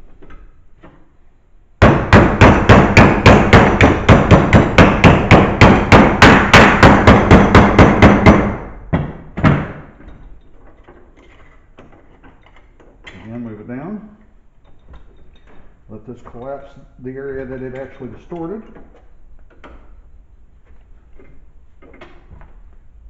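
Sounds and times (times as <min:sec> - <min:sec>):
hammer on sheet metal: 0:01.8 - 0:09.8.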